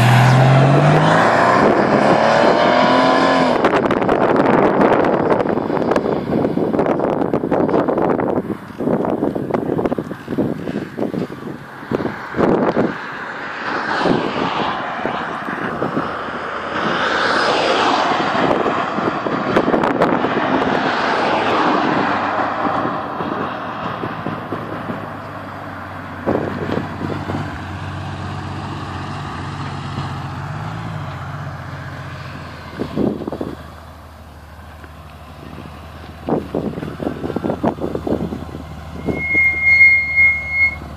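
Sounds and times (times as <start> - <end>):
wind noise on microphone: 0.2 - 28.6, 30.9 - 33.9, 35.4 - 40.9
car engine exhaust: 21.8 - 40.9.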